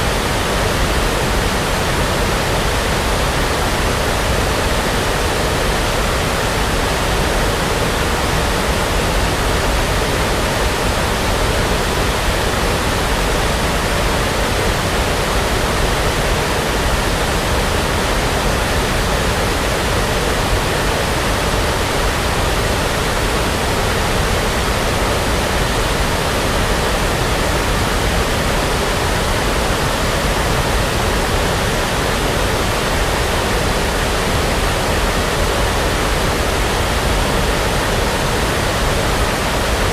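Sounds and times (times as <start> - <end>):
brown noise hiss: 0.0 - 39.9.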